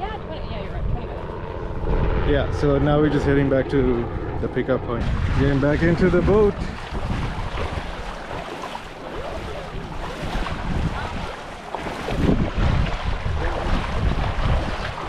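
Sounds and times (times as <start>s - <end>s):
wind buffeting microphone: 0.0s - 15.0s
small waves at shoreline: 5.0s - 15.0s.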